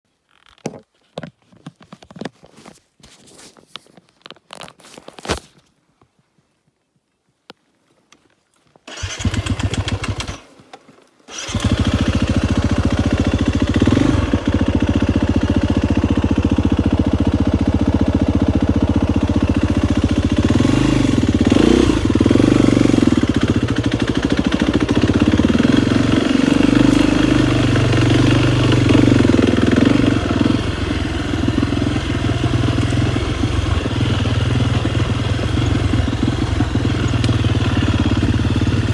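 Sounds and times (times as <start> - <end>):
dirt bike engine starting and revving: 8.9 - 38.9.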